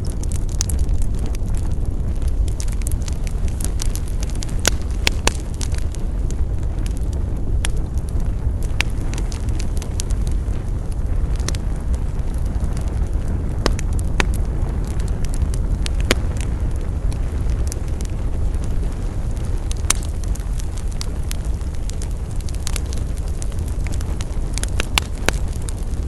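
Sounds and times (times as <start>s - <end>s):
loud fire snaps: 0.0s - 26.0s
wood fire crackling: 0.0s - 26.0s.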